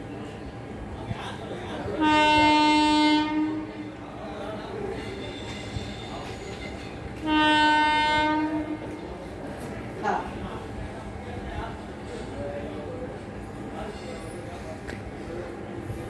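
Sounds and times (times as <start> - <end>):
low rumble of train: 0.0 - 16.0
train horn blasts: 2.0 - 4.0, 6.8 - 9.1.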